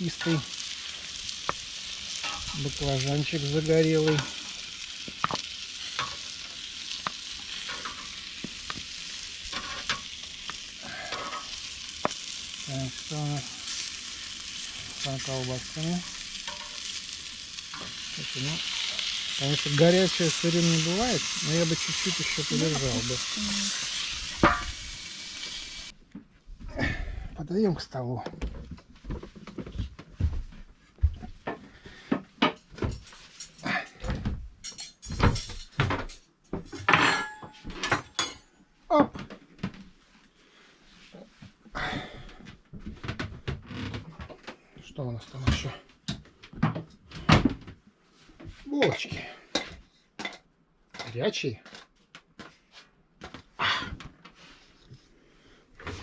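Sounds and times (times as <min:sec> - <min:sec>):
food sizzling on a grill: 0:00.0 - 0:26.0
dishes and cookware clattering: 0:02.2 - 0:02.6, 0:07.4 - 0:08.8, 0:09.5 - 0:10.2, 0:11.0 - 0:11.6, 0:16.4 - 0:17.0, 0:24.4 - 0:24.8, 0:32.4 - 0:39.3, 0:48.8 - 0:51.9.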